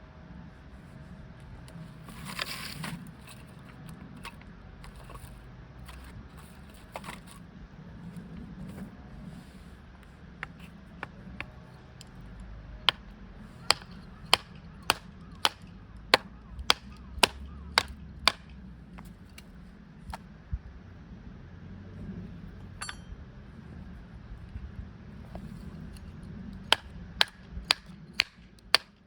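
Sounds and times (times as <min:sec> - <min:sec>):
hammer strikes: 0:13.6 - 0:18.5, 0:22.8 - 0:23.1, 0:26.7 - 0:28.9
short metallic clink: 0:22.8 - 0:23.2.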